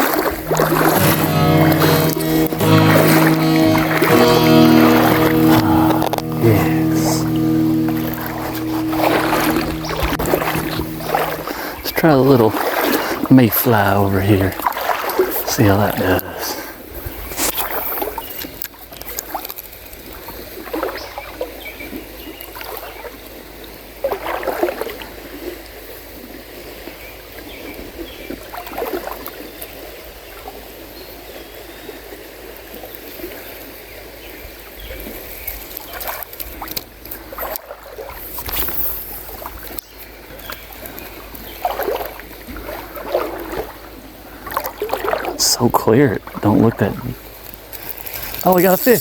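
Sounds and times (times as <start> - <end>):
river water running and sloshing: 0.0 - 5.4, 7.3 - 49.0
water splashes: 0.0 - 16.8, 40.7 - 49.0.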